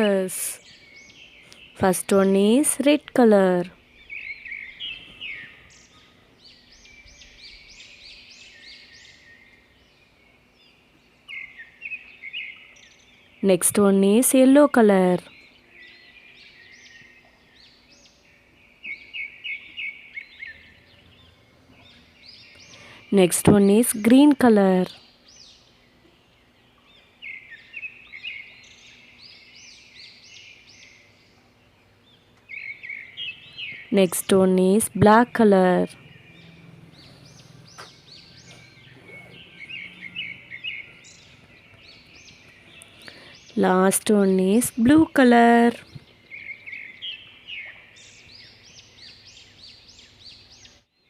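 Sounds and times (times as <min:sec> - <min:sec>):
birds chirping and calling: 0:00.0 - 0:50.9
bird warbling: 0:32.5 - 0:48.0.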